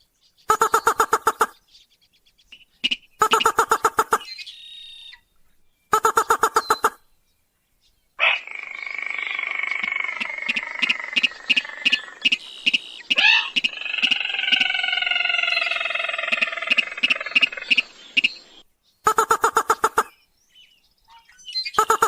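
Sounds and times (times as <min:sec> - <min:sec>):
long nasal rail calls: 0:08.2 - 0:20.1
sharp clicks: 0:09.8 - 0:14.2.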